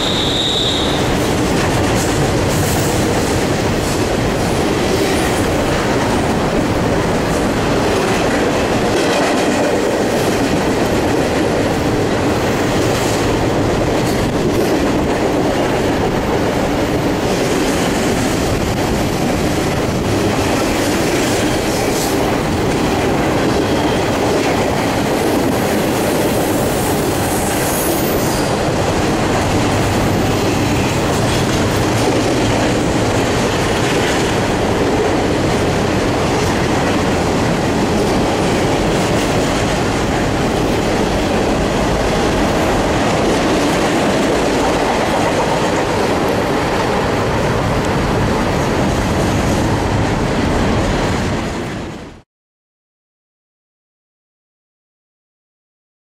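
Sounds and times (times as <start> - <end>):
high wheel squeal: 0.0 - 1.2
freight train wheels clickety-clack: 0.0 - 52.2.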